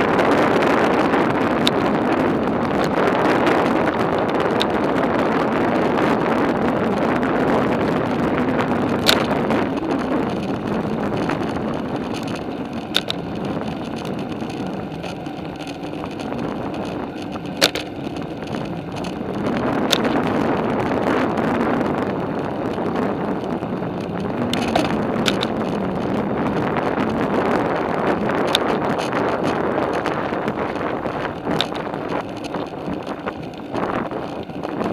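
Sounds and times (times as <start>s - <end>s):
bicycle rolling on pavement: 0.0s - 34.9s
wind noise on microphone: 0.0s - 34.9s
sharp clicks: 8.9s - 19.2s, 19.8s - 20.3s, 24.0s - 26.2s.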